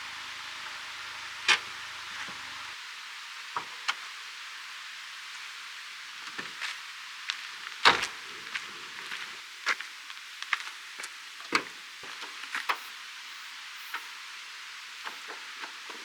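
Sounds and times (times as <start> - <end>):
steady high hiss: 0.0 - 6.2, 12.6 - 16.0.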